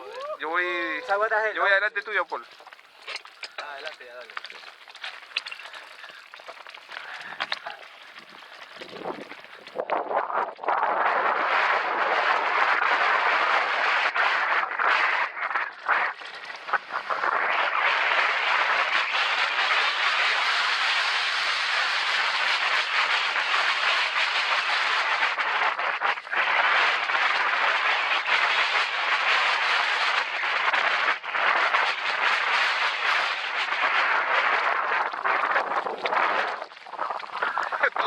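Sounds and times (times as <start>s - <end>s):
wind and tyre noise: 0.0s - 38.0s.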